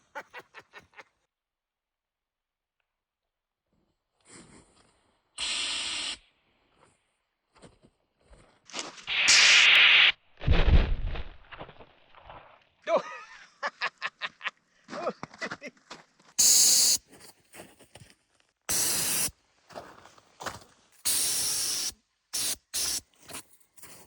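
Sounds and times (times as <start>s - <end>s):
aerosol can spraying: 5.4s - 6.2s, 9.1s - 10.1s, 16.4s - 17.0s, 18.7s - 19.3s, 21.1s - 23.1s.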